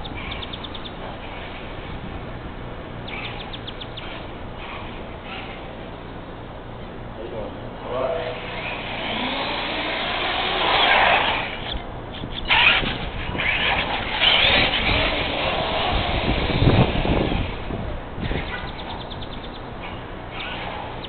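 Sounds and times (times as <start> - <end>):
rc truck motor whining: 7.8 - 21.0.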